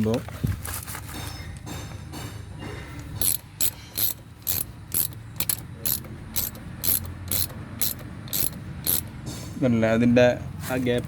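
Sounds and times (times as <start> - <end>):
ratchet wrench clicking: 3.0 - 9.3.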